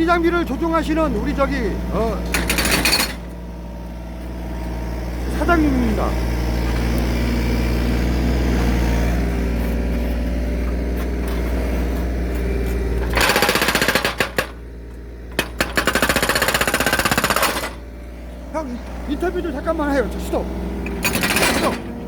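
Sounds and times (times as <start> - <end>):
excavator diesel engine running: 0.0 - 22.0
hydraulic breaker hammering wood: 2.2 - 3.3, 13.0 - 14.7, 15.3 - 17.8, 20.8 - 22.0.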